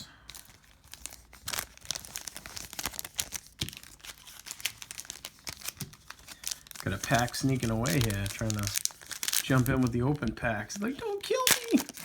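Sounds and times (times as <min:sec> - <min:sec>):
card pack wrappers crinkling: 0:00.2 - 0:12.0.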